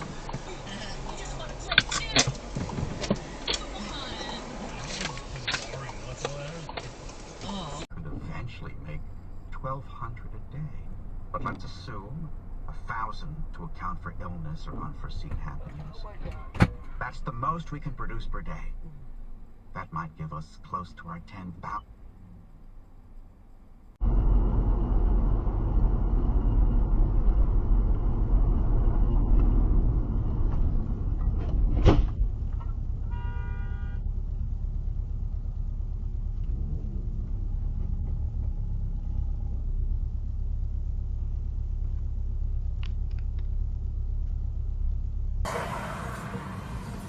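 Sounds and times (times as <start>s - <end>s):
car road and engine rumble: 0.0s - 47.0s
car horn: 33.0s - 34.1s
sharp bang: 45.5s - 47.0s.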